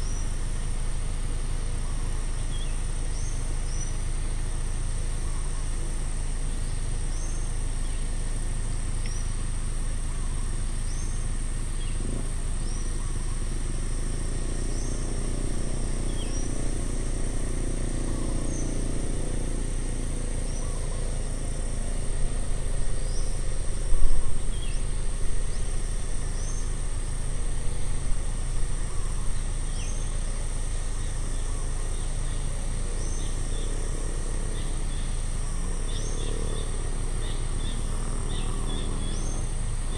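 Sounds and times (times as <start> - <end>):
high-pitched insect drone: 10.9 - 39.9.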